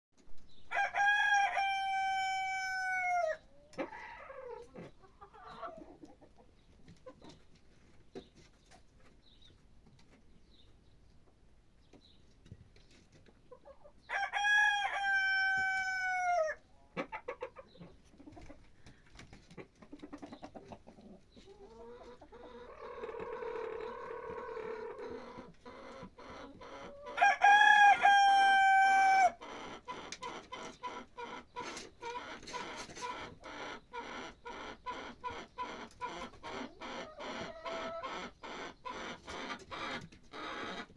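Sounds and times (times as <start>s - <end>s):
rooster crowing: 0.7s - 3.4s, 14.1s - 16.6s, 27.2s - 29.4s.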